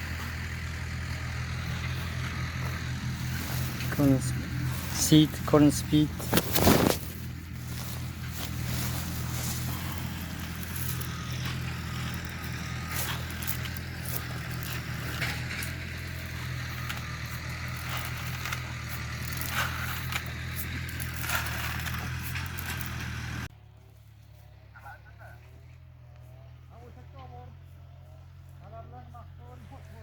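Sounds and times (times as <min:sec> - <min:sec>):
tractor engine running: 0:00.0 - 0:30.0
crackles and clicks: 0:05.9 - 0:23.4.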